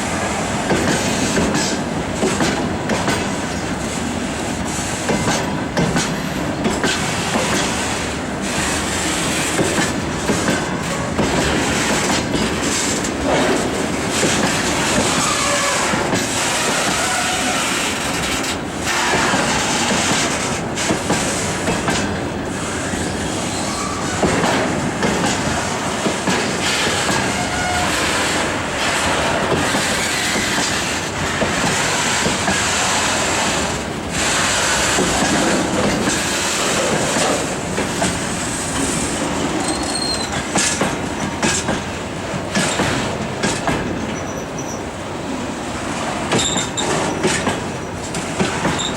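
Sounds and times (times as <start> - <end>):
train wheels clattering over joints: 0.6 - 3.7, 4.7 - 28.4, 29.0 - 44.9, 45.7 - 48.9
faint wheel squeal: 22.8 - 24.2, 39.6 - 40.5, 44.1 - 44.9.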